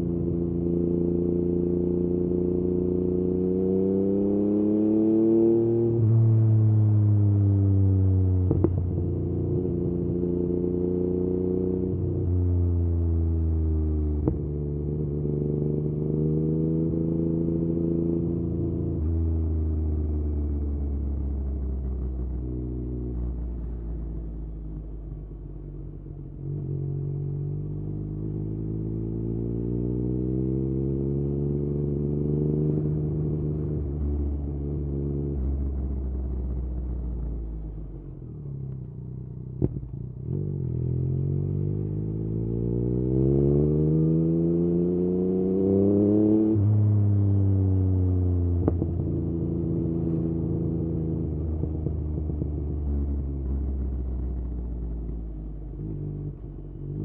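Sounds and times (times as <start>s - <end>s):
motorcycle engine revving: 0.0s - 6.2s, 26.4s - 57.0s.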